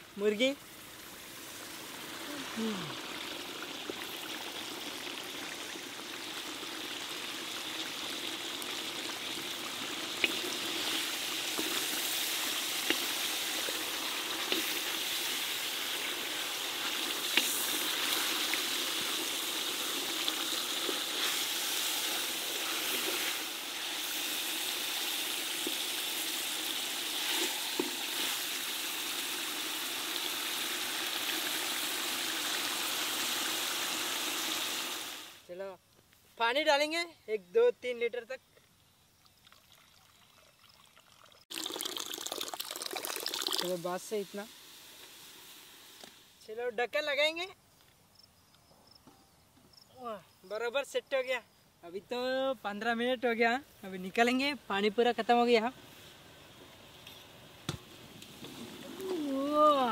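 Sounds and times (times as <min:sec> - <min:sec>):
chickens frying in hot oil: 0:00.2 - 0:35.4, 0:40.1 - 0:46.4.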